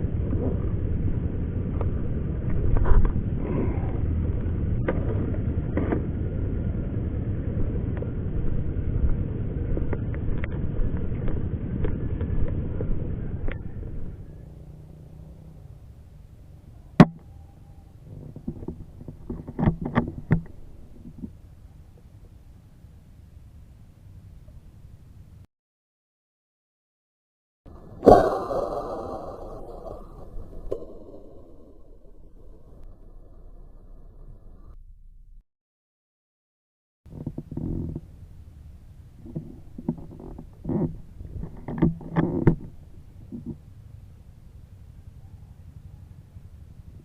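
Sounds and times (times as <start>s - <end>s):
steady low rumble: 0.0s - 14.5s, 27.7s - 35.4s
air rifle shot crack: 27.8s - 34.1s.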